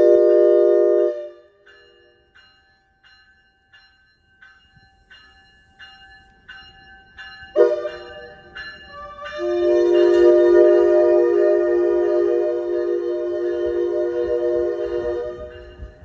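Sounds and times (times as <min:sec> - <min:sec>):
train horn blast: 0:00.0 - 0:01.6, 0:08.9 - 0:15.9
train bell ringing: 0:00.0 - 0:16.0.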